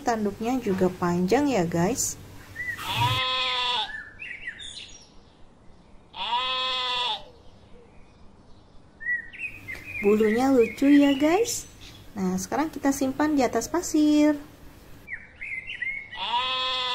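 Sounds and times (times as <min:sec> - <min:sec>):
sheep bleating: 0:02.8 - 0:04.0, 0:06.2 - 0:07.3, 0:16.2 - 0:16.9.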